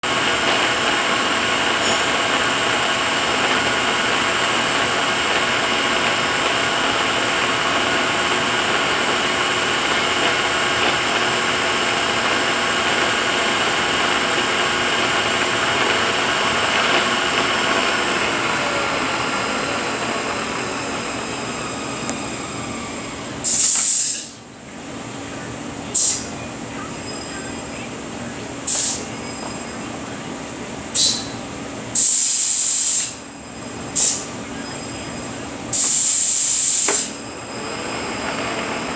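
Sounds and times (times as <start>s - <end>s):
gear whine of transmission: 0.0s - 38.9s
air hiss: 21.0s - 24.4s, 25.9s - 26.3s, 28.6s - 29.1s, 30.9s - 31.4s, 32.0s - 33.3s, 33.9s - 34.4s, 35.7s - 37.8s.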